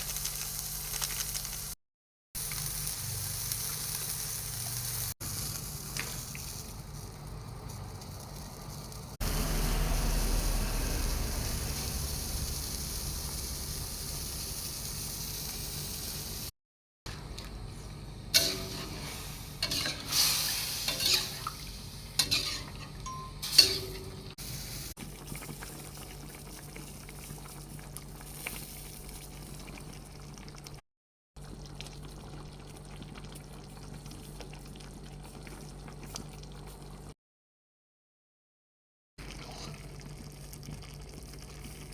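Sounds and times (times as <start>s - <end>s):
sauce bubbling and hissing in a pan: 0.0s - 1.8s, 2.4s - 16.5s, 17.2s - 22.9s, 23.6s - 30.8s, 31.4s - 37.2s, 39.2s - 41.9s
utensil clinking against a pan: 22.2s - 24.3s.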